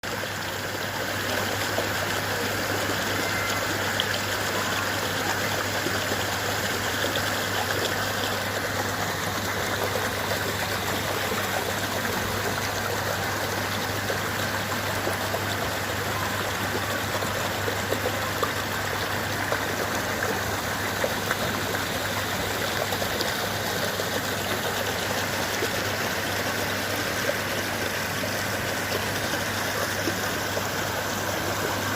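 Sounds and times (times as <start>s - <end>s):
waterfall splashing into pond: 0.0s - 31.9s.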